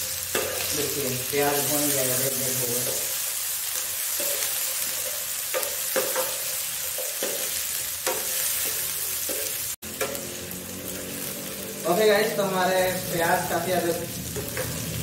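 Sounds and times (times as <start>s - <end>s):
potatoes and onions sizzling in oil: 0.0s - 15.0s
metal spatula scraping pan: 4.0s - 11.6s, 14.3s - 15.0s.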